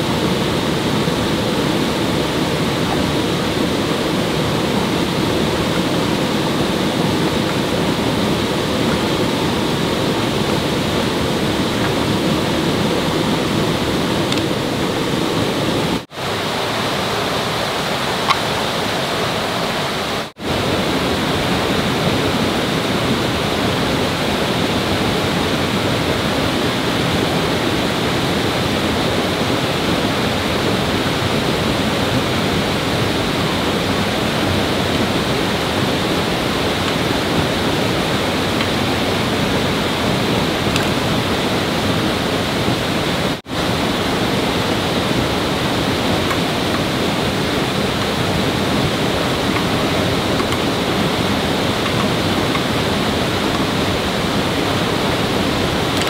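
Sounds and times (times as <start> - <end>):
fast-flowing water rushing: 0.0 - 56.0.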